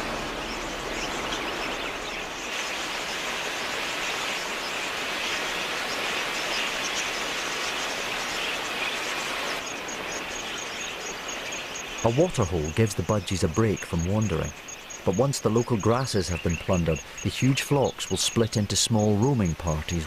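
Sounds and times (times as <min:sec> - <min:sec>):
budgerigars chattering: 0:04.0 - 0:20.0.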